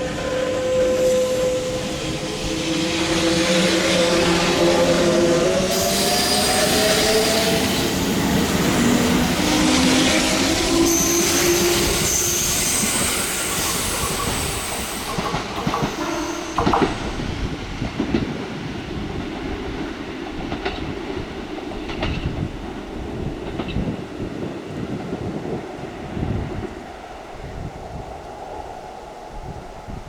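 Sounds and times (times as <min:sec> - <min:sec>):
electric train whine: 0:00.0 - 0:30.0
train wheels clacking over joints: 0:05.7 - 0:18.4.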